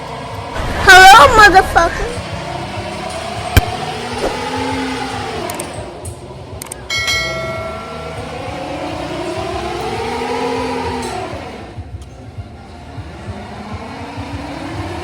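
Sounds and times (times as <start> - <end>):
vehicle engines running: 0.0 - 15.0
sharp knock: 3.6 - 4.4.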